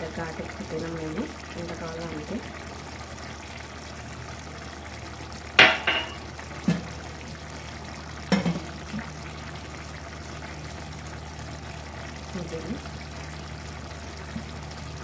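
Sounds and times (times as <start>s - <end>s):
metal cookware clinking: 5.6s - 6.3s.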